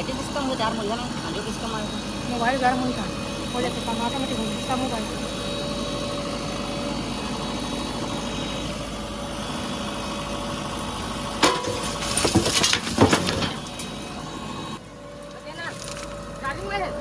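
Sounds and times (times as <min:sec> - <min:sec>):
diesel engine running: 0:00.0 - 0:17.0
loud metal clanking: 0:11.4 - 0:14.0.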